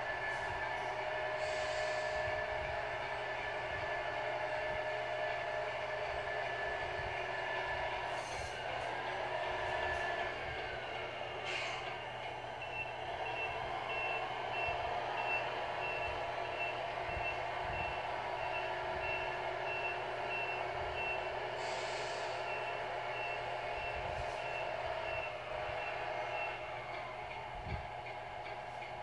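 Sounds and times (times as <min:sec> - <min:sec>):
air brake hiss: 0:01.3 - 0:02.4, 0:08.1 - 0:08.9, 0:11.4 - 0:12.0, 0:21.5 - 0:22.6
reversing beeps: 0:11.5 - 0:21.4, 0:22.2 - 0:26.7.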